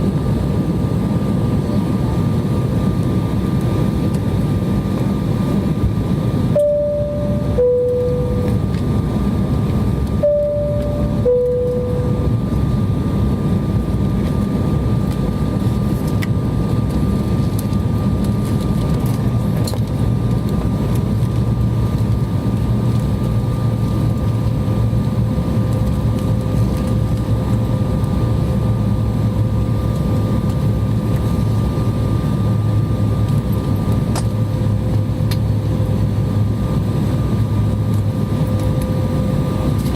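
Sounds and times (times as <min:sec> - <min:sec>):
airliner cabin roar: 0:00.0 - 0:39.9
two-tone cabin chime: 0:06.6 - 0:08.8, 0:10.2 - 0:12.5.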